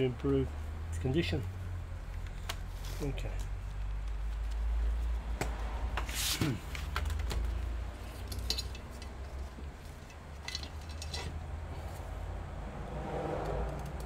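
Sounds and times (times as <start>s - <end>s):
clicks and clinks of small tools: 8.3s - 9.2s.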